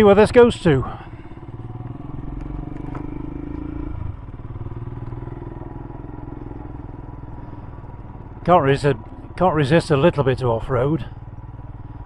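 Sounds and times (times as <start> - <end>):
motorcycle engine at low speed: 0.0 - 12.0.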